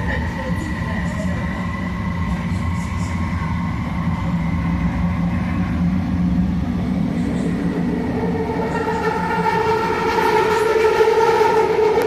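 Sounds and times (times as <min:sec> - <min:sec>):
train low rumble: 0:00.0 - 0:12.0.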